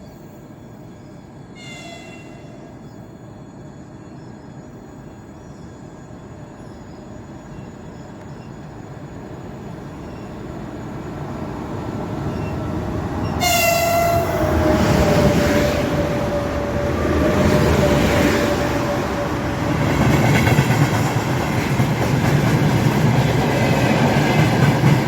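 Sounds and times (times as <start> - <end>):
locomotive horn: 1.6 - 2.5, 13.4 - 14.8
train wheels rumbling on rails: 7.2 - 25.0.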